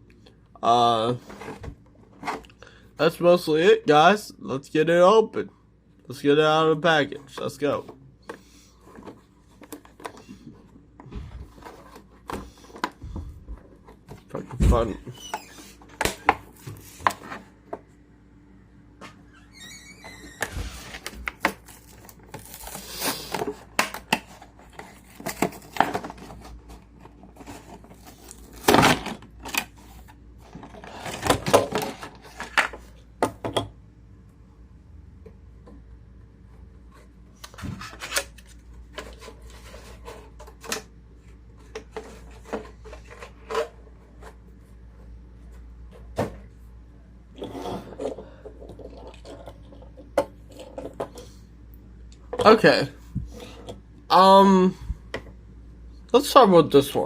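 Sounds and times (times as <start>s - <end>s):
packaging crinkling and tearing: 21.0s - 23.3s.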